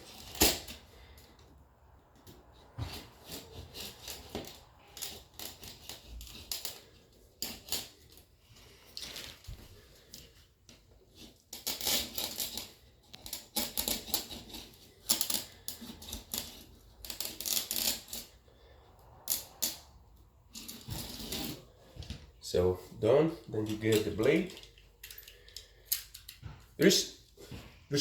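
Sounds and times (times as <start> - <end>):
spline roller rattling and scraping: 2.3 - 10.4, 11.0 - 18.7, 20.5 - 22.0.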